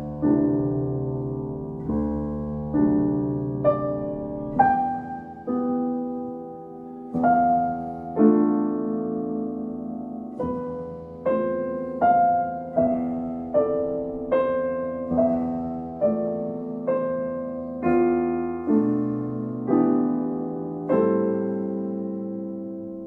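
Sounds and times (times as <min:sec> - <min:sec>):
gentle solo piano music: 0:00.0 - 0:23.0.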